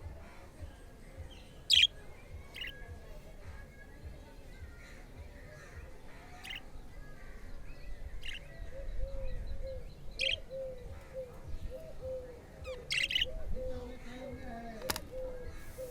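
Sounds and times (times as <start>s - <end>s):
budgerigars chirping: 1.7s - 1.9s, 10.2s - 11.1s, 12.6s - 13.6s, 14.8s - 15.9s.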